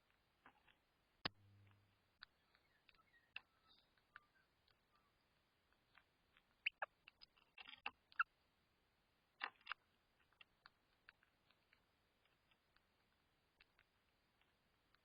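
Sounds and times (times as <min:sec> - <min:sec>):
bird clicks and ticks: 0:00.4 - 0:08.3
bird chirps: 0:02.2 - 0:06.0, 0:06.6 - 0:07.0.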